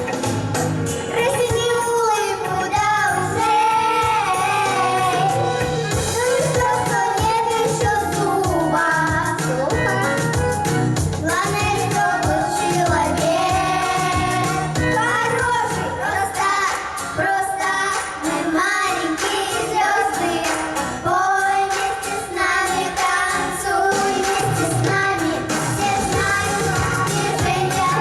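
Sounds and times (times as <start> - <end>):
children's choir singing pop song: 0.0 - 28.0
instrumental accompaniment with beat: 0.0 - 28.0.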